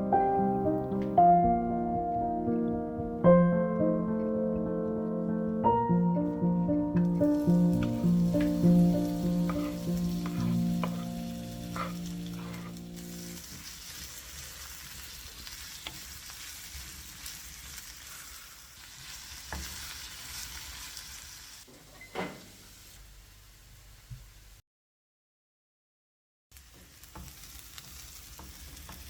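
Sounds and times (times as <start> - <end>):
background music: 0.0 - 13.2
food sizzling in a frying pan: 7.1 - 21.7, 22.3 - 24.5, 26.5 - 29.0
utensil clicking against pan: 9.2 - 12.6.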